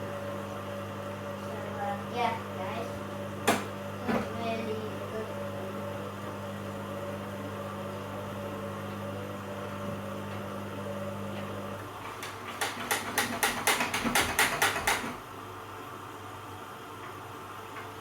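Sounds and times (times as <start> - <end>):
washer dryer humming: 0.0 - 18.0.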